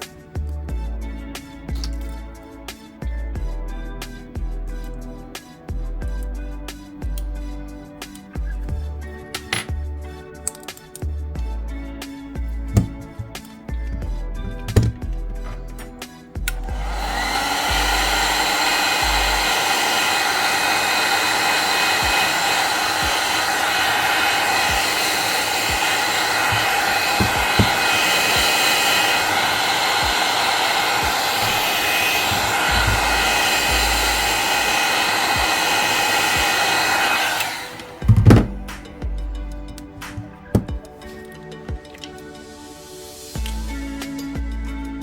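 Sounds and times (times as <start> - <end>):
heat gun blowing with fan whine: 16.5 - 38.9.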